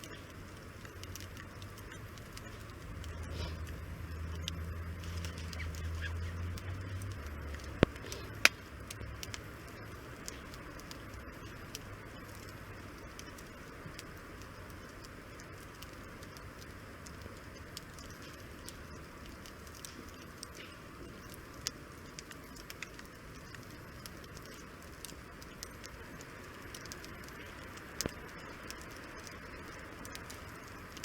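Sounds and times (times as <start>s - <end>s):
loud sharp fire snaps: 0.0s - 31.0s
wood campfire crackling: 0.0s - 31.0s
low rumble: 1.4s - 10.2s.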